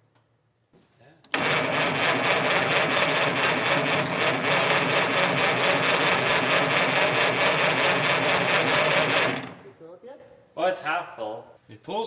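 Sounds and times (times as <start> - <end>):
starter motor cranking engine: 1.3 - 9.8.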